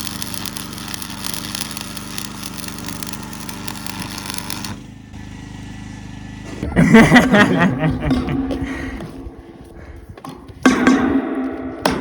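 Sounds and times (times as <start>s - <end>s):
crackling hiss: 0.0s - 4.8s
motor running steadily: 0.0s - 10.6s.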